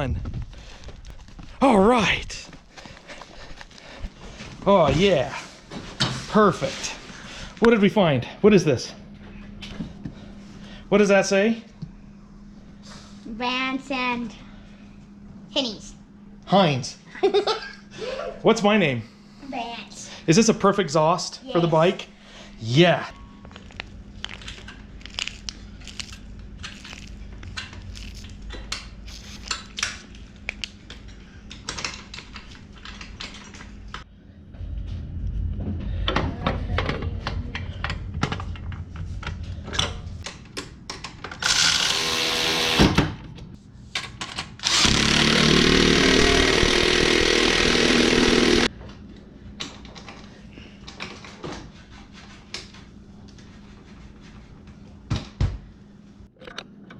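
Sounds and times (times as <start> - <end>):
power tool running: 41.4 - 43.1, 44.6 - 48.7.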